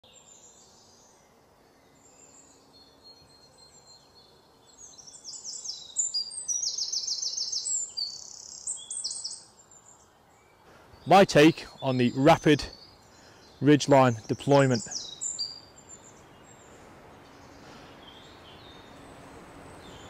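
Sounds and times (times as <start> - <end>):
birds chirping: 0.0 - 20.0
rapid repeated bird notes: 10.6 - 20.0.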